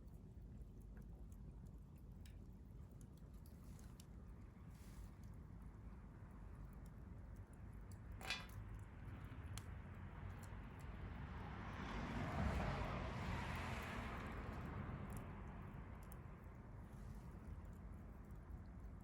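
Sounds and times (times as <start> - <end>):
fire pop: 8.2 - 8.6.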